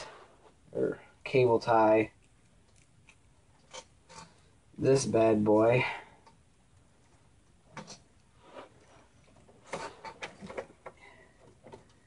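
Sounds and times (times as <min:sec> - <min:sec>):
cable handling noises: 0:07.7 - 0:12.0.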